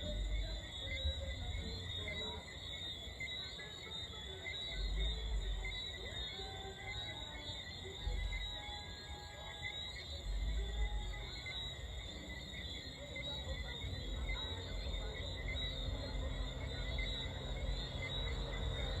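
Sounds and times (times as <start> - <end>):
distant pulsing bass music: 0.0 - 2.5, 10.2 - 19.0
night insects chirping: 0.0 - 19.0.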